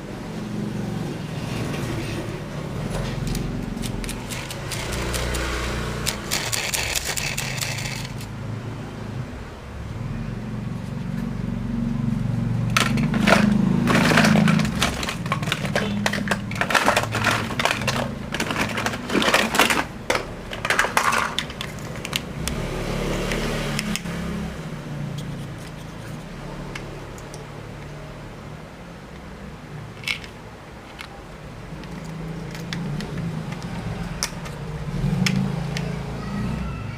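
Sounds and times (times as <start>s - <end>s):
plastic toy vehicles clattering: 6.0s - 8.3s, 12.7s - 22.3s, 29.9s - 31.2s.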